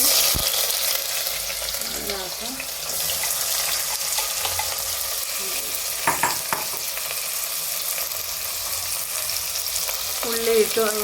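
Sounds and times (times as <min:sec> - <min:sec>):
onions sizzling in hot oil: 0:00.0 - 0:11.0
spoon knocking against pan: 0:06.0 - 0:06.9.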